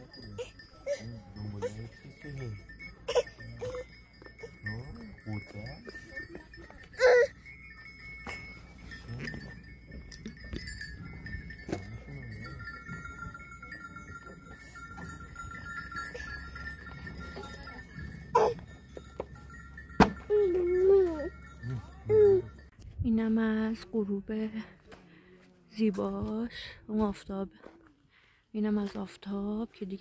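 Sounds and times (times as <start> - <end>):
bells clinking: 0.0 - 22.8.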